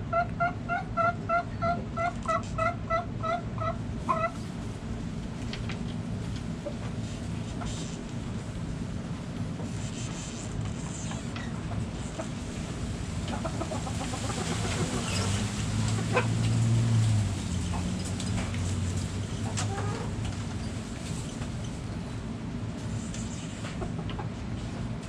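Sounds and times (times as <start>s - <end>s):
hens clucking: 0.0s - 4.6s, 9.9s - 21.4s, 23.5s - 24.7s
low steady rumble: 0.0s - 25.0s.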